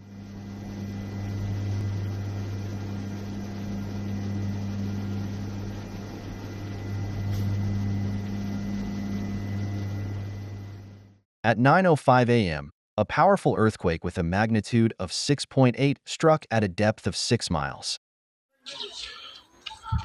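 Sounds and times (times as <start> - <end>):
low electrical hum: 0.0 - 11.2.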